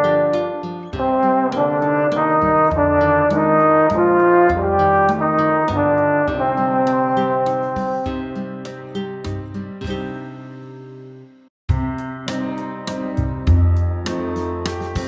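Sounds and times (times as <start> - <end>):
brass instrument melody: 0.0 - 9.2
backing track with drums and bass: 0.9 - 10.2, 11.7 - 15.0.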